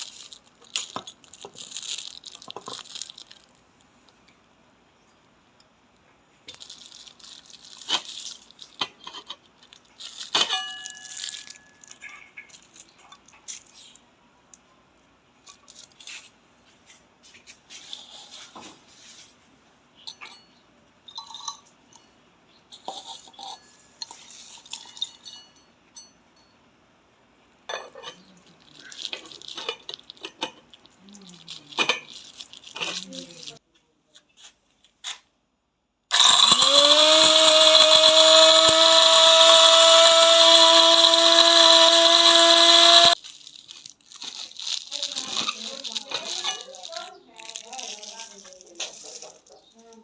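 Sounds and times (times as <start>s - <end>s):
hard parts clinking and scraping: 6.5s - 14.0s, 20.0s - 26.5s, 27.7s - 33.6s, 40.6s - 50.0s.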